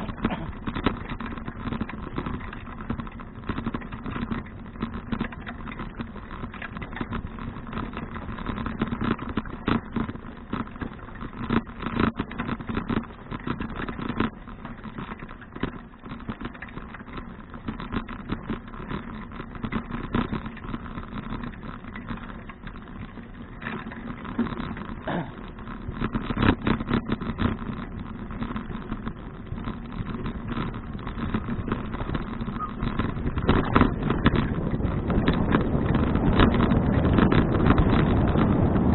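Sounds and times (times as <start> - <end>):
bicycle rattling and knocking: 0.0 - 38.9
bicycle tyre rumble on road: 0.0 - 38.9.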